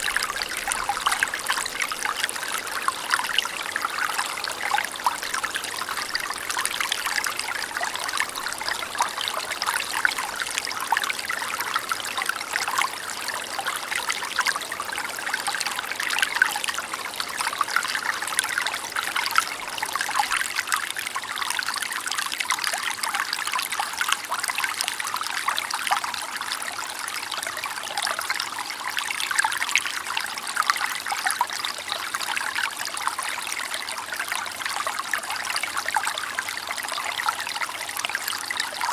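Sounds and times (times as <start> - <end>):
river babbling over stones: 0.0 - 22.6, 32.2 - 38.9.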